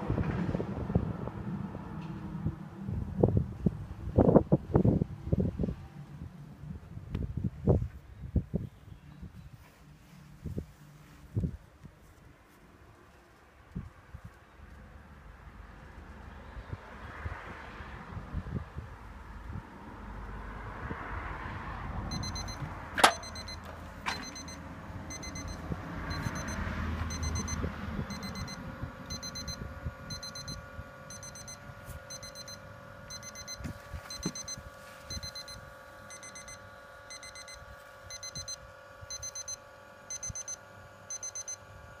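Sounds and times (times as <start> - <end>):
steady hum: 22.0 - 42.0
electronic beeper alarm pips: 22.1 - 41.6.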